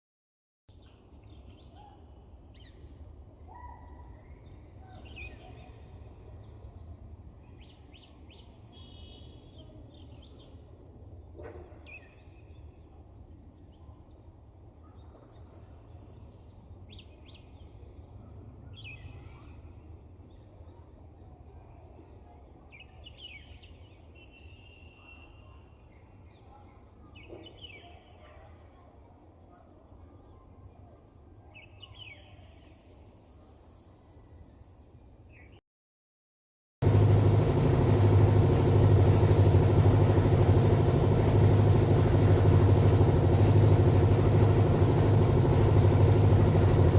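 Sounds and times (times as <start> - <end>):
low background rumble: 36.8 - 46.9.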